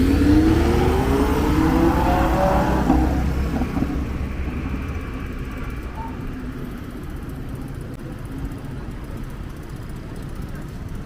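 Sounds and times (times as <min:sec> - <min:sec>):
car passing: 0:00.0 - 0:08.0
low rumble of road traffic: 0:00.0 - 0:11.0.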